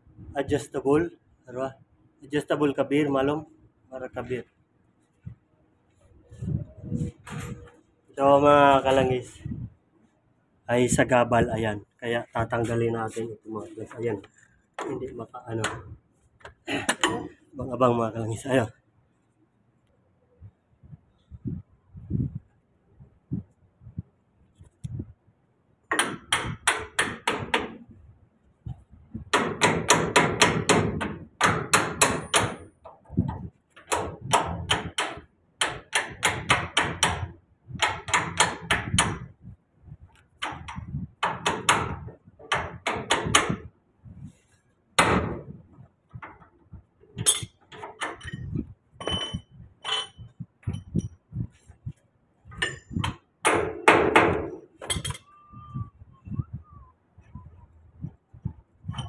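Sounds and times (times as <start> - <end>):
impact wrench hammering: 25.9 - 27.8, 29.3 - 32.7, 33.8 - 39.3, 52.6 - 55.2
ringing metallic clinks: 48.2 - 51.1, 54.9 - 55.3.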